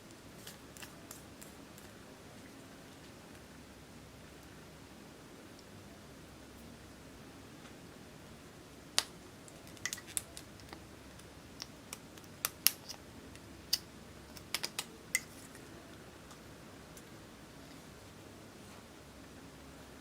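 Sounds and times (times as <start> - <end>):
small hard objects clicking: 9.0 - 15.3.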